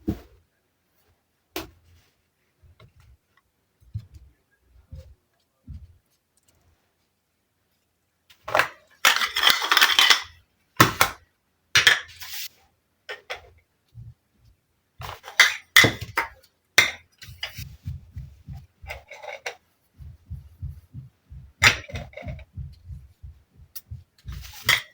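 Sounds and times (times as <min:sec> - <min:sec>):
soft low tapping: 0:02.7 - 0:06.1, 0:17.2 - 0:19.2, 0:19.9 - 0:24.9
toy tea set pieces clinking: 0:09.1 - 0:10.3.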